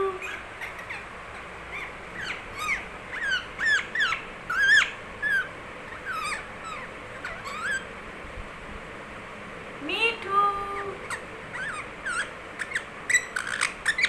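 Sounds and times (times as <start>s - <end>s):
parrot chirping and squeaking: 0.1s - 7.9s, 11.0s - 14.0s.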